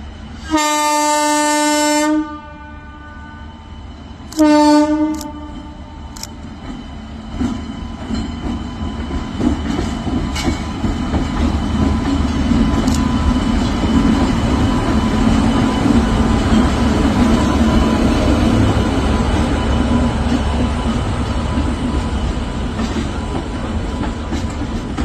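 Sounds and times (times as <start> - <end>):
train wheels rumbling on rails: 0.0 - 25.0
wheels clacking on rail gaps: 5.2 - 25.0.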